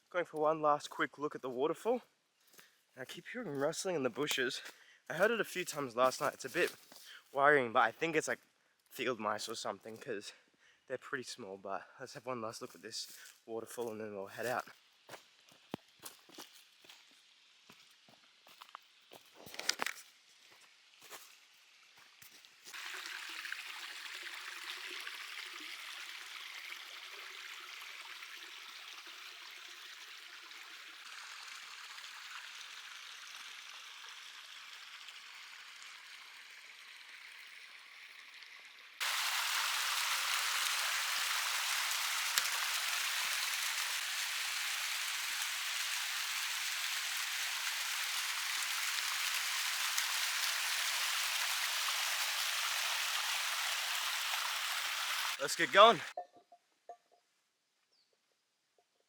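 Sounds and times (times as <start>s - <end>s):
waterfall rushing: 51.6s - 56.1s.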